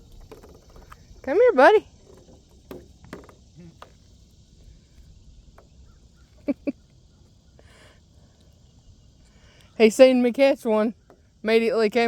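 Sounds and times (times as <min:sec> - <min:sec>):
faint outdoor background hiss: 0:00.0 - 0:12.0.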